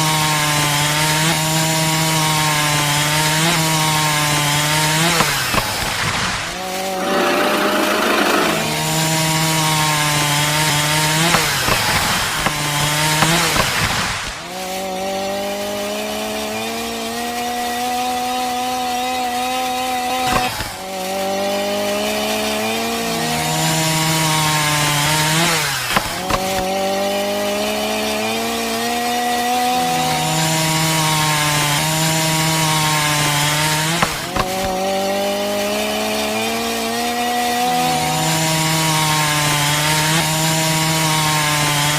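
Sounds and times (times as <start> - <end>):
small electric motor whining: 3.7 - 14.7.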